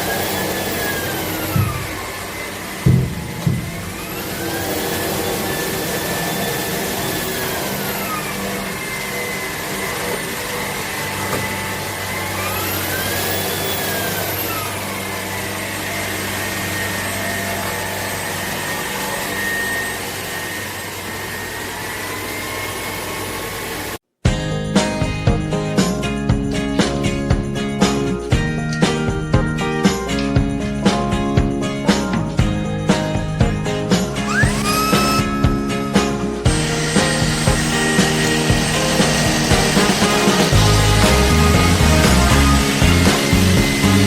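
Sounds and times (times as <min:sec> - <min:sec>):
vacuum cleaner motor whine: 0:00.0 - 0:24.0, 0:34.2 - 0:35.5, 0:36.5 - 0:44.0.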